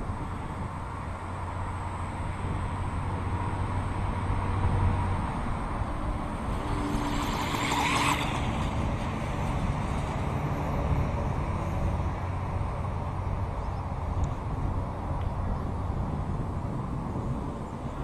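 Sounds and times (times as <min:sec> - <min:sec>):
model motorcycle motor running: 0:06.1 - 0:11.0.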